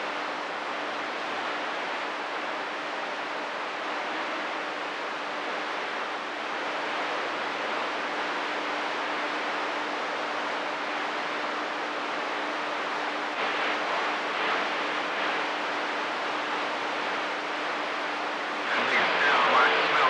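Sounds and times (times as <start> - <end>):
faint constant hum: 0.0 - 20.0
radio static hiss: 12.0 - 20.0.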